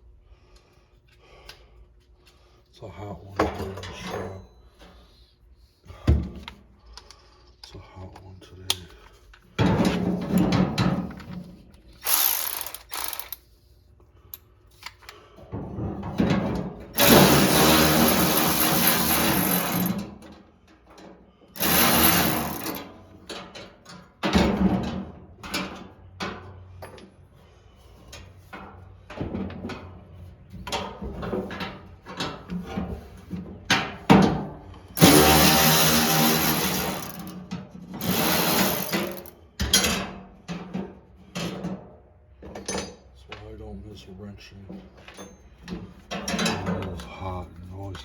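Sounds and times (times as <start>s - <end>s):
hand tools clanking: 12.0s - 13.4s, 17.0s - 20.0s, 21.6s - 22.8s, 35.0s - 37.4s, 38.0s - 40.0s
power drill running: 12.0s - 13.4s, 17.0s - 20.0s, 21.6s - 22.9s, 35.0s - 37.4s, 38.0s - 39.3s.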